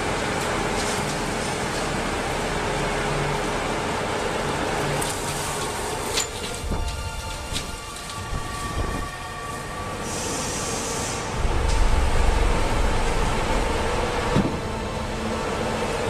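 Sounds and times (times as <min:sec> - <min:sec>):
industrial machinery humming: 0:00.0 - 0:16.0
deep rumble: 0:11.3 - 0:15.9.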